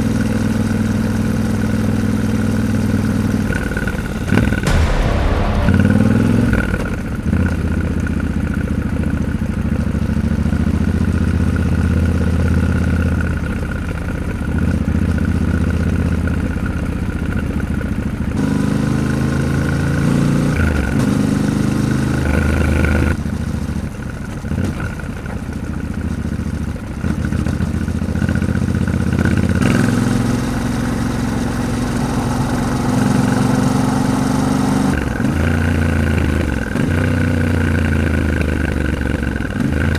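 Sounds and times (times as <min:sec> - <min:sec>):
motorcycle engine running: 0:21.0 - 0:39.9.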